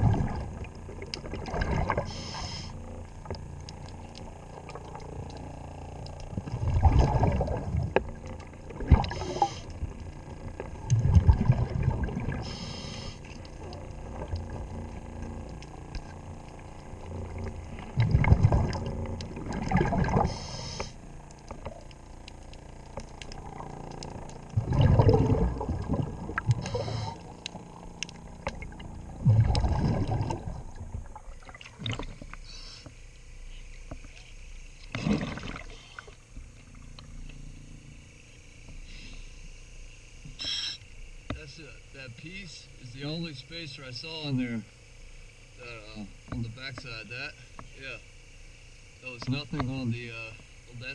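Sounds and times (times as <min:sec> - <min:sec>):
bubbles rumbling on exhale: 0:00.0 - 0:32.5, 0:34.9 - 0:36.4
regulator hiss on inhale: 0:02.0 - 0:02.8, 0:09.1 - 0:09.7, 0:12.4 - 0:13.4, 0:20.2 - 0:21.0, 0:26.6 - 0:27.3, 0:32.4 - 0:34.6, 0:38.7 - 0:40.9
faint clicks: 0:20.8 - 0:24.6, 0:25.8 - 0:28.9.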